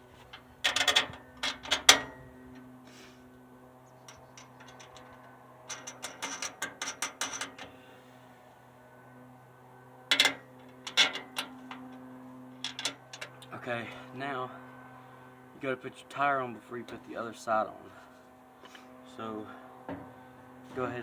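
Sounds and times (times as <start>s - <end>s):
faint steady hum: 0.0s - 21.0s
metallic clicks of bolts and nuts: 4.1s - 5.1s, 5.7s - 7.7s.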